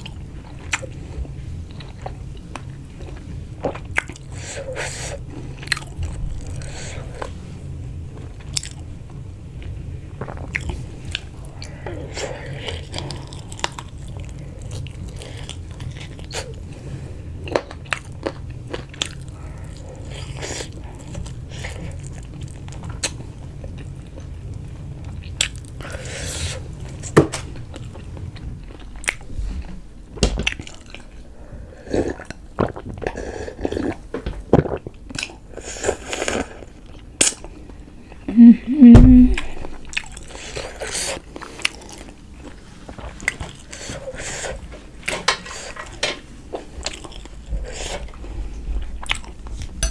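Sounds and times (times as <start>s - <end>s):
person chewing food: 0.0s - 7.3s, 27.7s - 29.8s, 32.0s - 44.6s.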